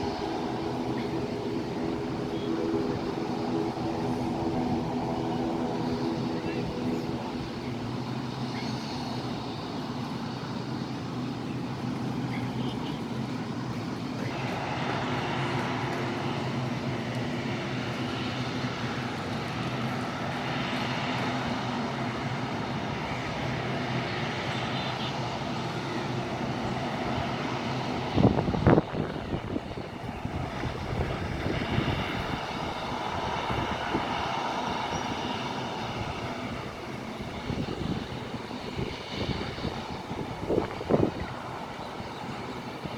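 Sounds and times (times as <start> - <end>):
rushing noise: 0.0 - 10.4
airplane engines humming: 0.0 - 42.9.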